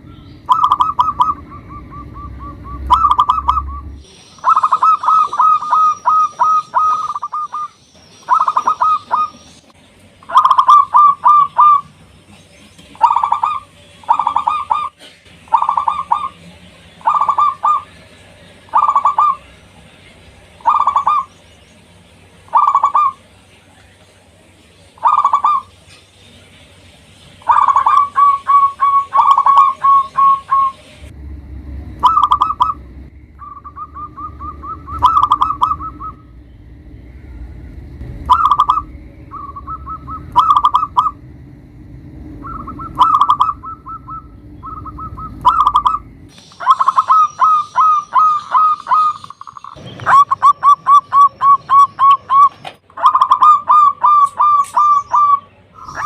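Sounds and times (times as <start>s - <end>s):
low rumble: 0.0s - 4.2s, 30.0s - 46.3s
dove cooing: 0.5s - 9.4s, 10.3s - 11.9s, 13.0s - 16.4s, 17.0s - 17.9s, 18.7s - 19.4s, 20.6s - 21.3s, 22.5s - 23.2s, 27.5s - 30.8s, 32.0s - 32.8s, 33.4s - 36.2s, 38.3s - 41.2s, 42.4s - 46.0s, 46.6s - 56.0s.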